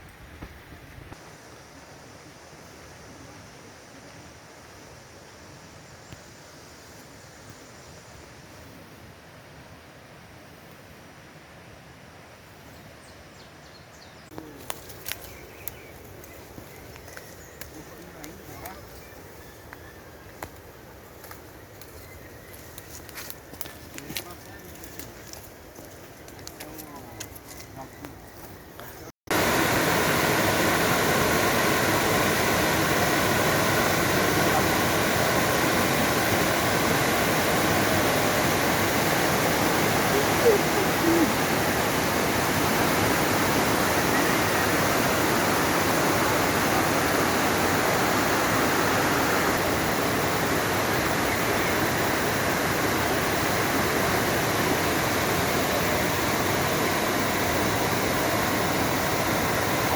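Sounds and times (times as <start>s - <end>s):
waterfall rushing: 29.3s - 59.9s.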